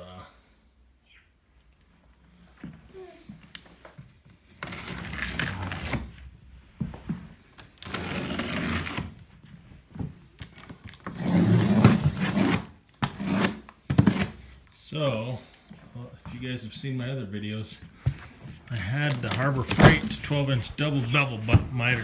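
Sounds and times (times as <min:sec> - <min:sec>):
cardboard box being torn open: 0:04.6 - 0:06.1, 0:07.8 - 0:09.1, 0:18.9 - 0:20.4.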